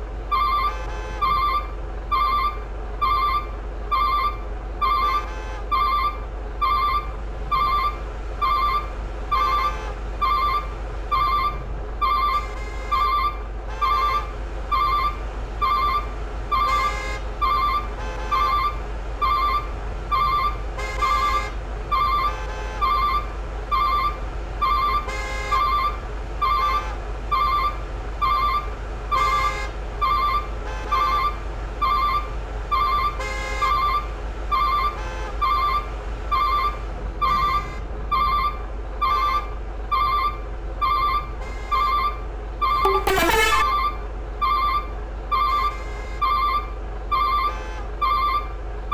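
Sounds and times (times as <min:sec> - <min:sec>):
diesel engine rumble: 0:00.0 - 0:48.9
reversing alarm beeping: 0:00.3 - 0:48.6
tone gliding down in pitch: 0:42.8 - 0:43.9.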